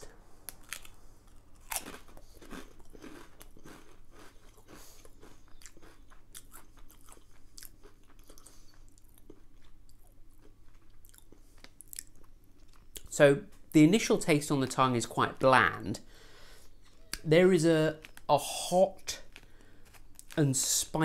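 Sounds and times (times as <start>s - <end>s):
person crunching crisps: 0.4s - 13.0s, 19.0s - 20.4s.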